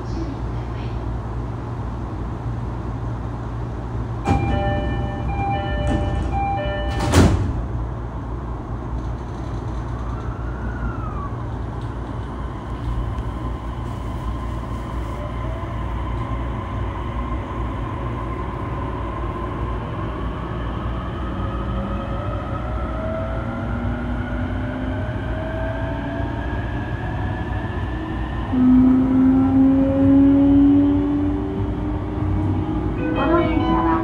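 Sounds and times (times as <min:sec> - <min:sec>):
low rumble of train carriage: 0:00.0 - 0:34.0
train door chime: 0:04.3 - 0:07.4, 0:33.0 - 0:34.0
sliding doors shutting with thud: 0:04.3 - 0:07.6.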